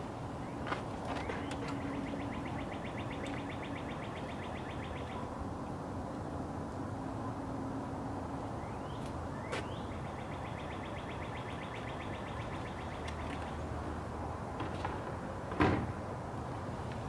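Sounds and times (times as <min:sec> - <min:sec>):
distant traffic hum: 0:00.0 - 0:17.0
songbird trilling: 0:01.4 - 0:05.3, 0:08.6 - 0:13.6.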